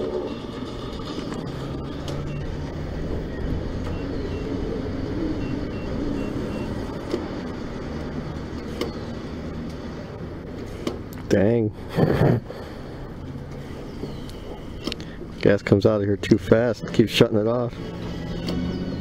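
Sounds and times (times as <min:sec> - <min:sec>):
low rumble of vehicles: 0:00.0 - 0:19.0
faint high beep: 0:05.2 - 0:06.8
sharp clicks: 0:14.1 - 0:15.1.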